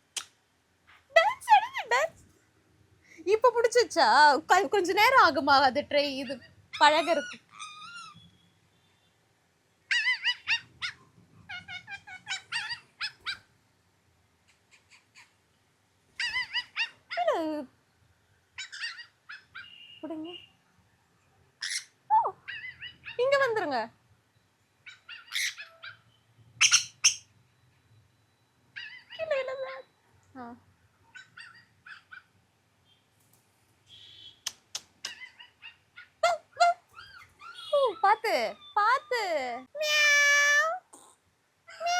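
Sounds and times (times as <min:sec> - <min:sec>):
parrots calling and chirping: 0:06.2 - 0:08.4, 0:09.9 - 0:13.5, 0:16.2 - 0:17.2, 0:18.6 - 0:20.5, 0:21.6 - 0:23.2, 0:24.8 - 0:27.3, 0:28.8 - 0:29.9, 0:31.1 - 0:32.3, 0:35.0 - 0:39.0, 0:39.8 - 0:40.8
parrot squawks: 0:06.7 - 0:08.4, 0:09.9 - 0:13.4, 0:16.2 - 0:17.0, 0:18.6 - 0:20.0, 0:21.6 - 0:23.2, 0:24.8 - 0:27.3, 0:37.0 - 0:37.9, 0:39.8 - 0:40.8
small dog yipping: 0:07.0 - 0:08.2, 0:09.9 - 0:13.5, 0:16.2 - 0:17.3, 0:18.6 - 0:19.7, 0:21.6 - 0:23.2, 0:24.9 - 0:26.0, 0:26.6 - 0:27.2, 0:28.8 - 0:29.9, 0:31.1 - 0:32.3, 0:35.0 - 0:38.8
dog whining: 0:28.8 - 0:29.9
sharp clicks: 0:34.4 - 0:35.2.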